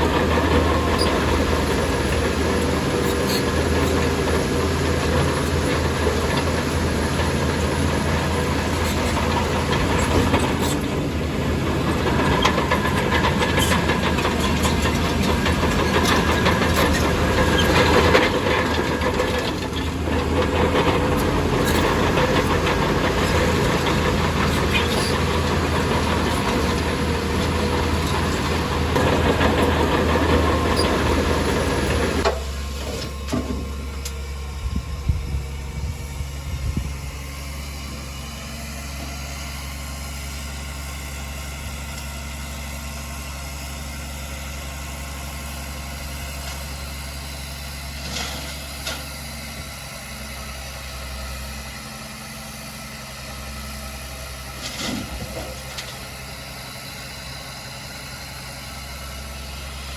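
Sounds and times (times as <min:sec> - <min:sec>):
heavy diesel engine working: 0:00.0 - 0:59.9.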